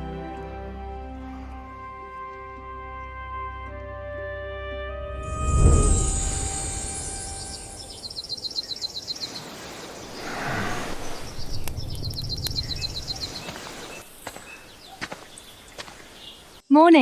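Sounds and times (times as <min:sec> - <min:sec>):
low outdoor ambience: 0:00.0 - 0:17.0
small bird trilling chirps: 0:06.1 - 0:16.7.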